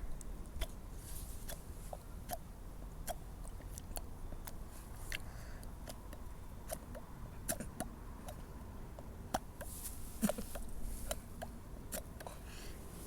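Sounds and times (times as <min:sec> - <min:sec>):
person making mouth clicks and pops: 0:01.5 - 0:12.4.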